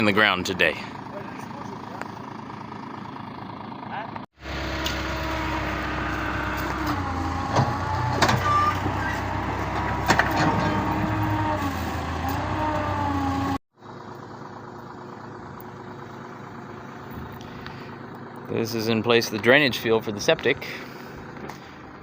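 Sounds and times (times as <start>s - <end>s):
heavy machine engine running: 4.4s - 18.5s.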